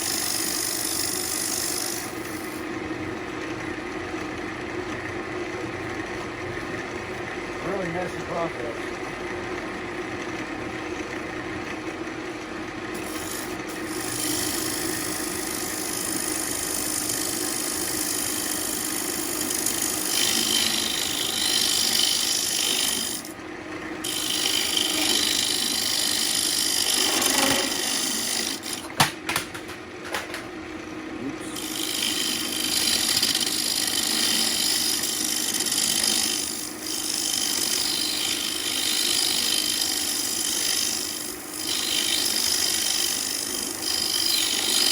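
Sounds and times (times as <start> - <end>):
wood being shaved on lathe: 0.0 - 2.8, 11.0 - 28.9, 31.1 - 44.9
lathe motor hum: 0.0 - 29.0, 29.6 - 44.9.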